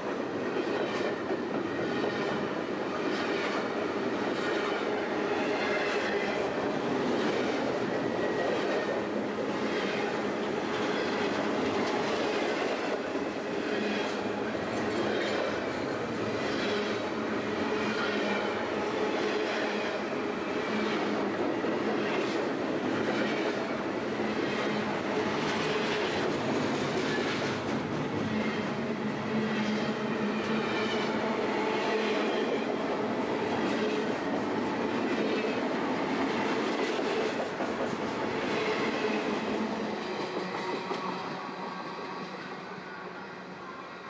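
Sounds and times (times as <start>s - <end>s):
freight train wheels clattering: 33.4s - 42.4s.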